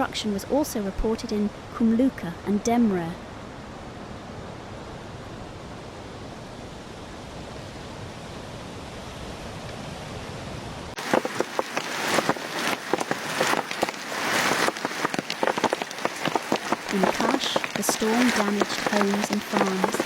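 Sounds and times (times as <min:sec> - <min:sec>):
heavy rain downpour: 0:10.8 - 0:20.0
rain and hail on hard surface: 0:11.0 - 0:20.0.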